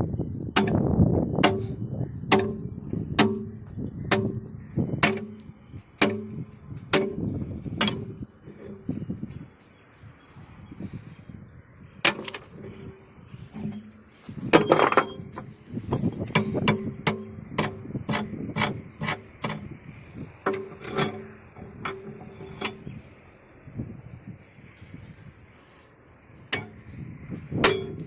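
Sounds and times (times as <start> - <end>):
hammer striking steel: 1.4 - 5.4, 6.0 - 7.2, 26.5 - 26.8, 27.6 - 28.0.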